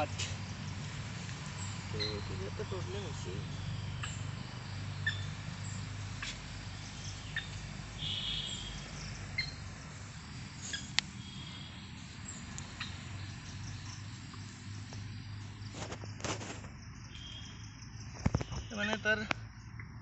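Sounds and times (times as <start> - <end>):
high bird chirps: 1.6 - 9.7, 17.1 - 19.2.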